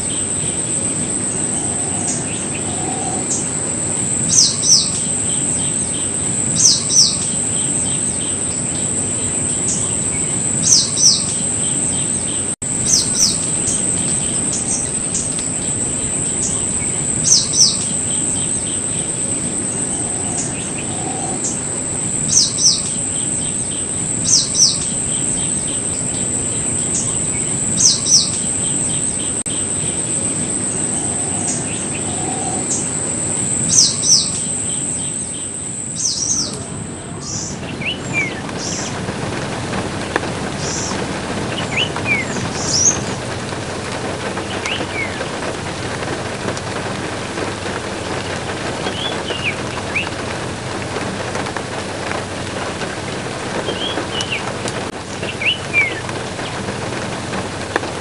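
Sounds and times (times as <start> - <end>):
bird chirping: 0.0 - 39.0
insect-like high drone: 0.0 - 39.0.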